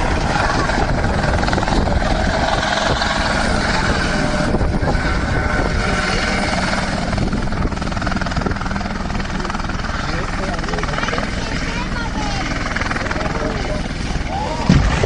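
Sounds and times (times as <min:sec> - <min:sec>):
aircraft engine drone: 0:00.0 - 0:15.0.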